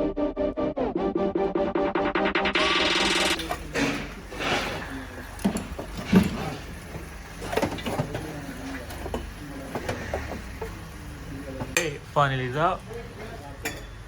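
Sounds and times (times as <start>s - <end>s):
metal scraping: 2.6s - 6.8s.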